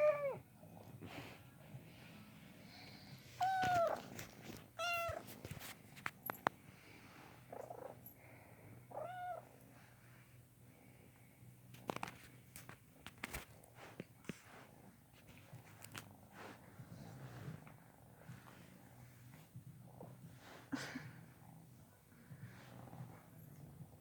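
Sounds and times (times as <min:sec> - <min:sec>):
cat purring: 0:00.0 - 0:24.0
cat meowing: 0:03.4 - 0:04.0, 0:04.8 - 0:05.2
light clicks and rustles: 0:03.4 - 0:06.6, 0:11.7 - 0:18.7.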